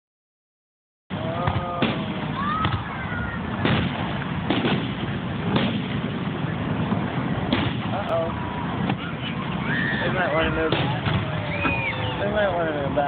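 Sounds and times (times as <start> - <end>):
fireworks bangs: 1.4 - 9.2, 10.0 - 12.2.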